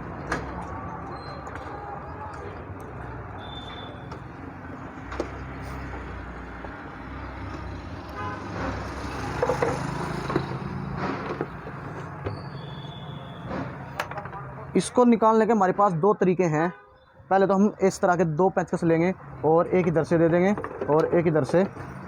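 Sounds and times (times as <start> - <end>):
road traffic: 0.0 - 22.0
vehicle horn tooting: 8.1 - 8.5.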